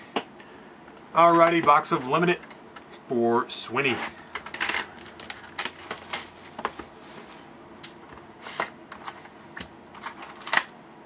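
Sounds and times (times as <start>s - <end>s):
wrapper rustling: 4.0s - 7.0s.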